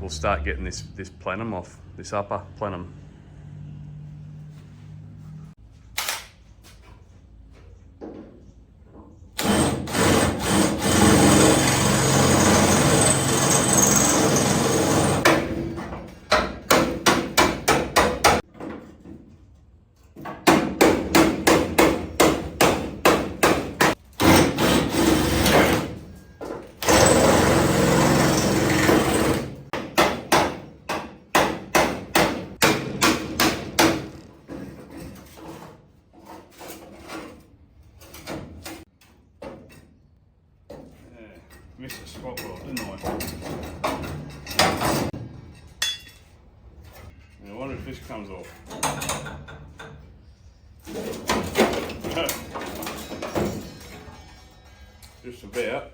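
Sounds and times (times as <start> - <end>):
power hammer striking car body: 15.1 - 18.4, 20.4 - 26.0, 29.7 - 34.2.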